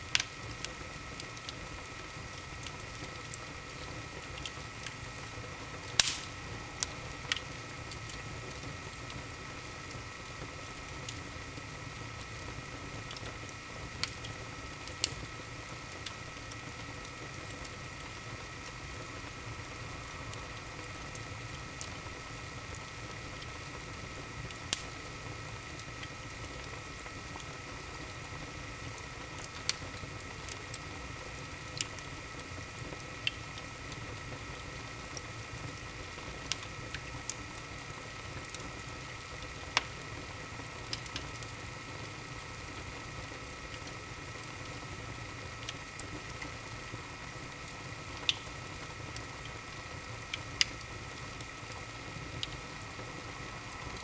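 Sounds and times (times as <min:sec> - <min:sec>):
wood fire crackling: 0:00.0 - 0:54.0
fire popping: 0:00.1 - 0:15.3, 0:18.9 - 0:28.2, 0:35.6 - 0:54.0.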